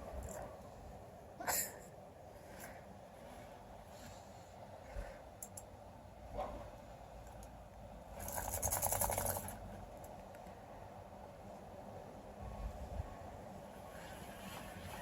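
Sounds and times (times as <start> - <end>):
faint clicks: 5.4 - 5.7.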